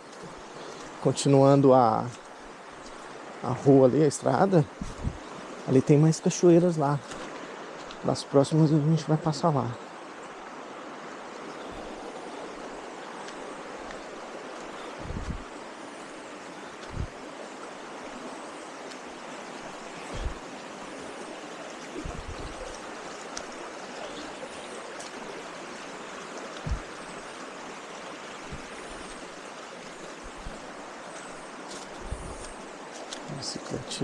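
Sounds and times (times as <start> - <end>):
stream rushing over rocks: 0.0 - 34.0
dull low thumps: 4.8 - 5.2, 15.0 - 15.5, 16.8 - 17.2, 20.1 - 20.4, 22.0 - 22.7, 26.6 - 27.0.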